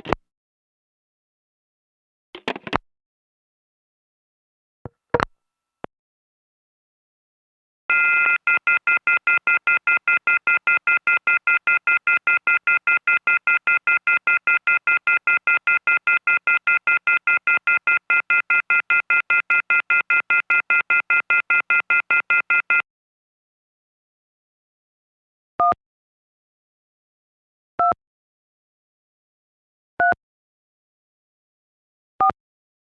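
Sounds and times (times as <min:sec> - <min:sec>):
shrill telephone off-hook tone: 0:07.9 - 0:22.8.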